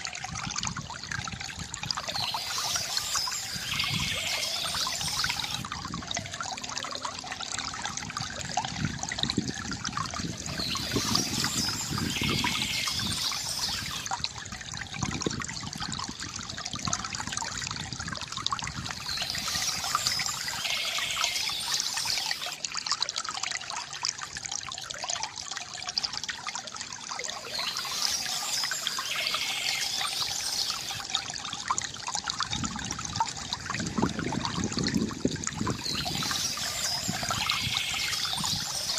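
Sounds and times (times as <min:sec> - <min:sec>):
water trickling from fountain: 0:00.0 - 0:38.9
birds chirping: 0:02.0 - 0:05.6, 0:10.4 - 0:14.1, 0:18.9 - 0:22.6, 0:27.3 - 0:31.1, 0:35.7 - 0:38.9.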